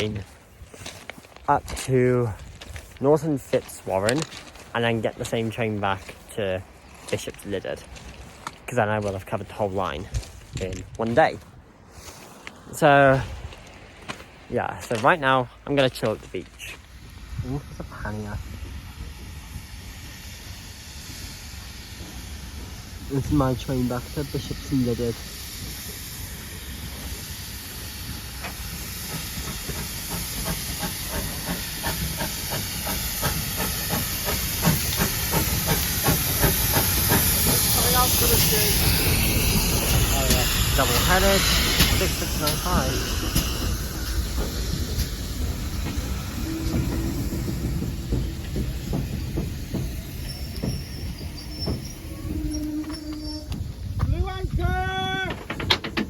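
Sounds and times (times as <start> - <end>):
steam train chuffing: 0.0 - 10.6, 15.0 - 56.0
wheels clicking on track: 28.1 - 56.0
steady squeal: 30.2 - 53.8.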